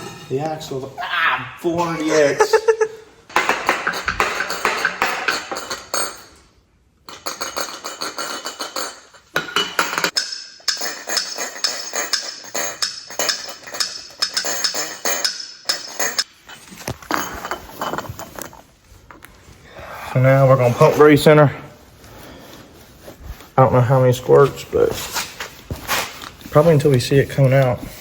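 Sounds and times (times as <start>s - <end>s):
music with clattering percussive beat: 9.7s - 16.3s.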